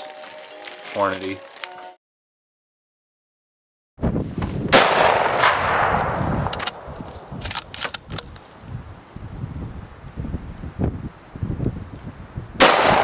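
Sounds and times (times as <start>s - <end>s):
rifle shot echoing: 4.7s - 7.4s, 12.6s - 13.0s
sharp clicks: 6.4s - 8.5s.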